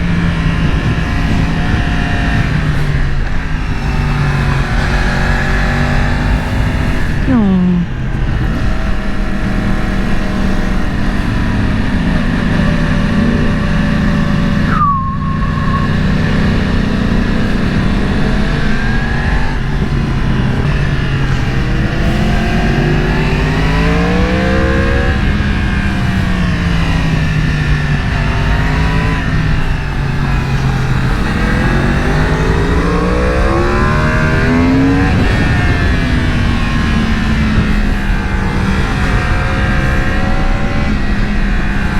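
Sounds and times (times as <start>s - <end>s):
motorcycle engine revving: 0.0s - 41.9s
wind rush: 11.0s - 40.1s.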